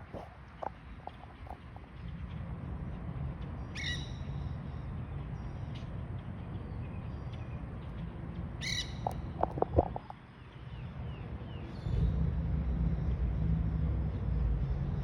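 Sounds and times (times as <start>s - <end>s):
steady low rumble: 7.6s - 10.2s.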